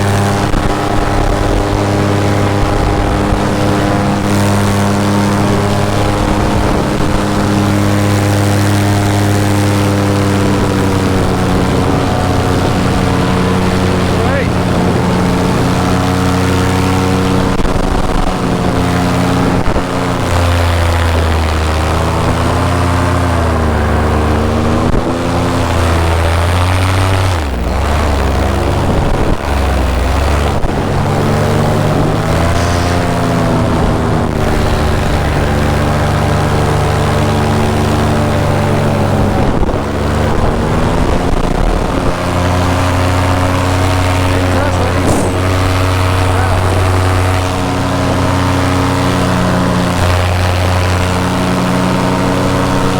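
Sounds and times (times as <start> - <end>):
paramotor engine drone: 0.0 - 52.9
rushing air: 30.0 - 36.7, 39.4 - 48.7.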